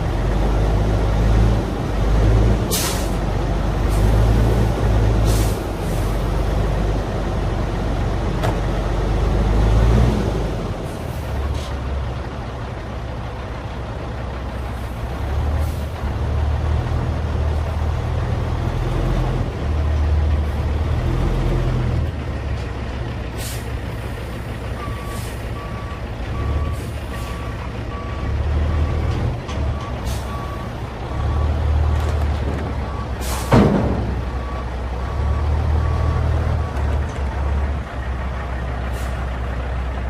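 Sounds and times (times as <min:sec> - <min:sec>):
diesel truck engine running: 0:00.0 - 0:40.0
air brake hisses: 0:02.7 - 0:03.2, 0:05.2 - 0:06.1, 0:23.4 - 0:23.8, 0:30.0 - 0:30.3, 0:33.2 - 0:33.5.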